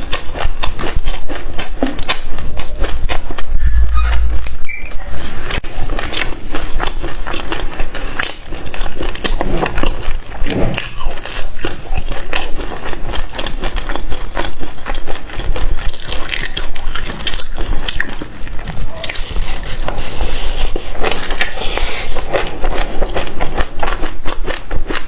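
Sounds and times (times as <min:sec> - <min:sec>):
chewing crunchy seeds: 0:00.0 - 0:03.6, 0:05.1 - 0:25.0
wet mouth sounds: 0:00.0 - 0:13.3.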